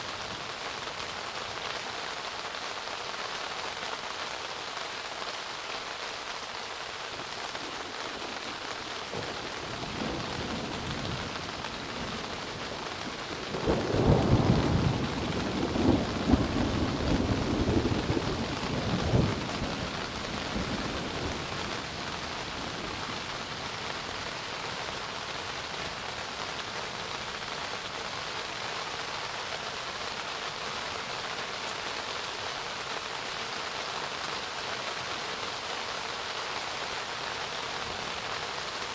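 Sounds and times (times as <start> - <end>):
steady rain: 0.0 - 38.9
thunder rumbling: 7.2 - 22.0.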